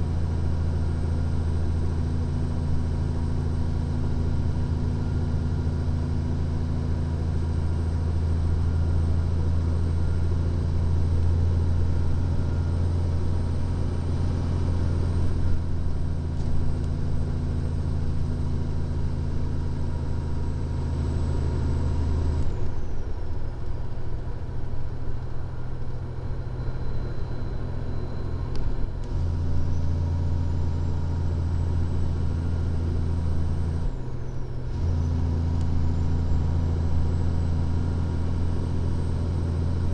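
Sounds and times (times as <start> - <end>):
truck engine drone in cab: 0.0 - 39.9
faint high whine: 21.0 - 39.9.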